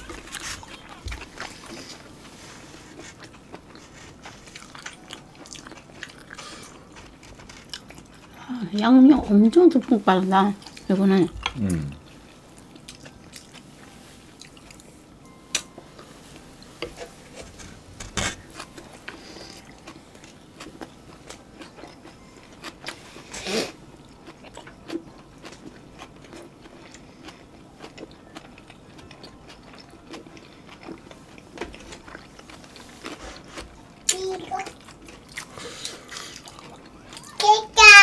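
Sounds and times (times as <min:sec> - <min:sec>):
biting and chewing soft food: 0:00.0 - 0:08.5, 0:16.8 - 0:37.4.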